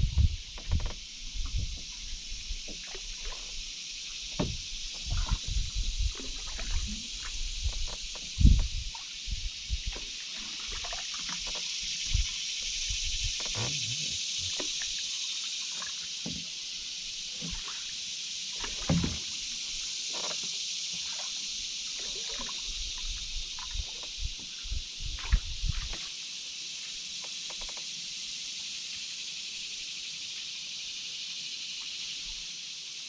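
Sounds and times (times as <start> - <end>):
paddle knocking against hull: 0.0 - 1.9, 4.2 - 9.1, 18.6 - 19.3
steady high hiss: 0.0 - 33.0
paddle strokes dipping and dripping: 0.4 - 26.2.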